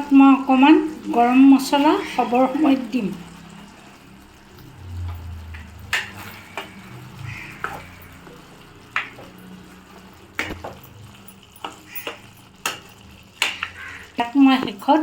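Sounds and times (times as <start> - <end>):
curry simmering with soft sizzle: 0.0 - 15.0
spoon knocking against pan: 11.6 - 14.0.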